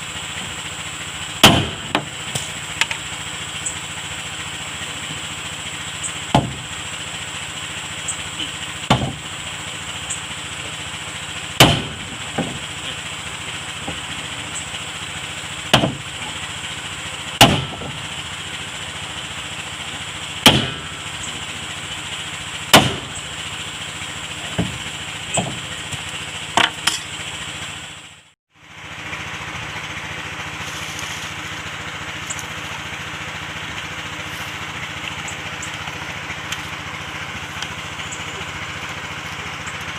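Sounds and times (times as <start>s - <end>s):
engine-like hum: 0.0s - 39.9s
hammer striking wood: 1.4s - 2.1s, 6.3s - 6.6s, 8.9s - 9.2s, 11.6s - 12.6s, 15.7s - 16.0s, 17.4s - 18.0s, 20.4s - 20.9s, 22.7s - 23.1s, 25.4s - 25.6s.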